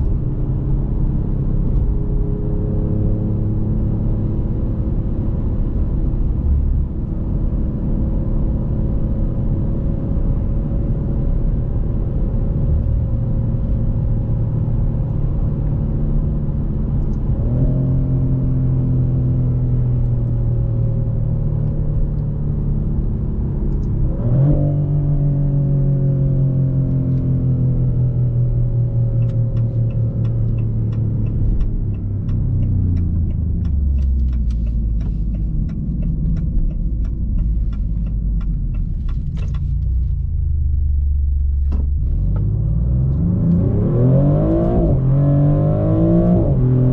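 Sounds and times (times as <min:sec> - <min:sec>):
car engine downshifting: 0:11.2 - 0:46.9
light even ticks: 0:29.2 - 0:40.2.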